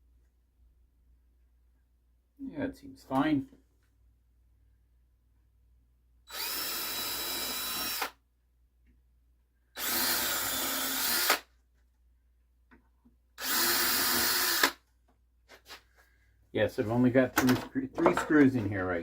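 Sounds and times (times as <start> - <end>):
power drill motor whine: 6.3 - 8.2, 9.8 - 11.4, 13.4 - 14.8.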